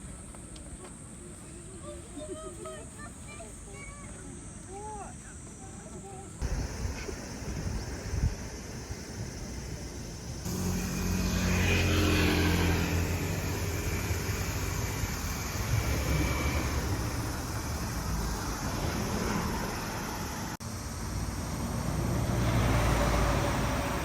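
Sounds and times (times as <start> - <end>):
engine passing by: 10.4 - 24.0.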